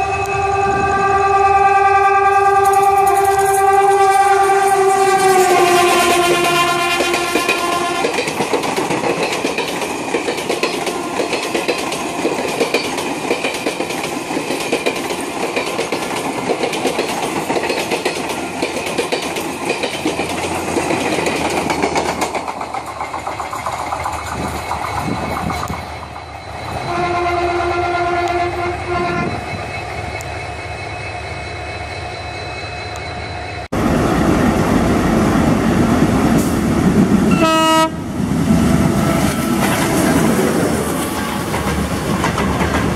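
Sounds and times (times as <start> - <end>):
train horn: 0.0 - 8.3, 26.8 - 29.5, 37.3 - 38.1, 38.8 - 40.4
diesel locomotive passing: 0.0 - 42.9
train wheels clattering over joints: 2.6 - 26.9, 39.2 - 42.9.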